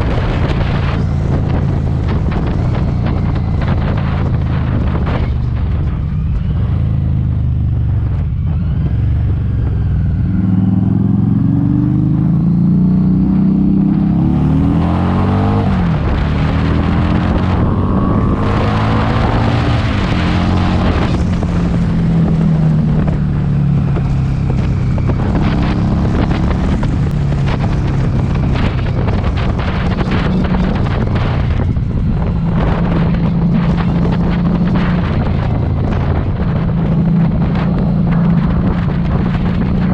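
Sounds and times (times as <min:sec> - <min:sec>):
motorcycle engine accelerating: 0:00.0 - 0:39.9
wind buffeting microphone: 0:00.0 - 0:39.9.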